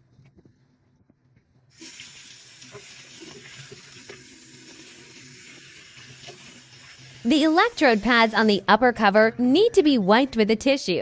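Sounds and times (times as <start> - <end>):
tap water running: 1.7 - 8.8.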